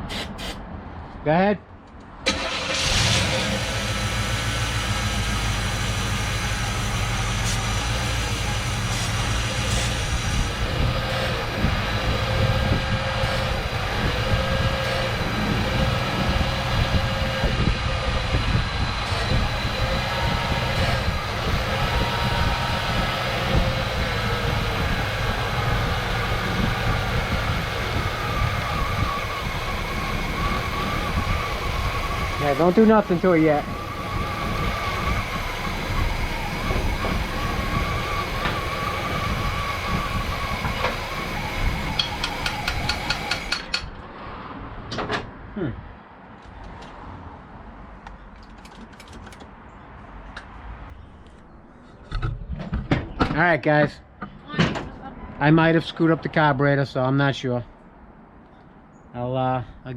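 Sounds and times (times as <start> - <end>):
car engine running: 2.3 - 43.8.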